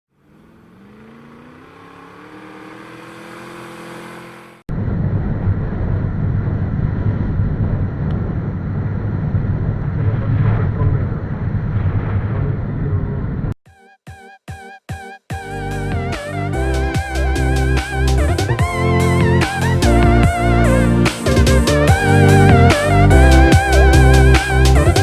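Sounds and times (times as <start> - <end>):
motorcycle accelerating: 0.1 - 4.6, 15.6 - 25.0
low rumble of riding motorcycle: 0.1 - 13.5.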